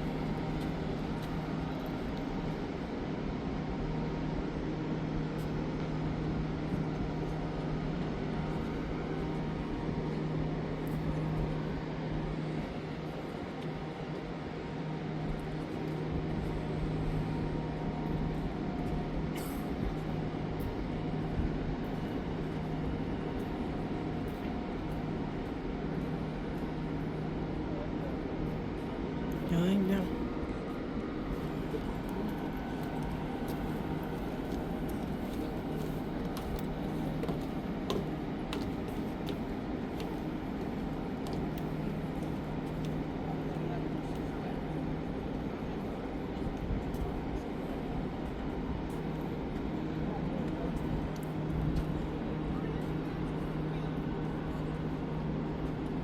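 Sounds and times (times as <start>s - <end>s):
low harbour rumble: 0.0s - 56.0s
ship machinery humming: 0.0s - 56.0s.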